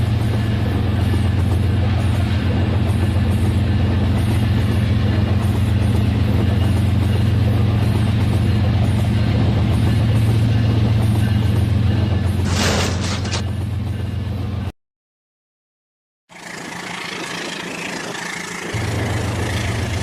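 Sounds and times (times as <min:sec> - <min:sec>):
rattle of wheels and gears: 0:09.7 - 0:14.2.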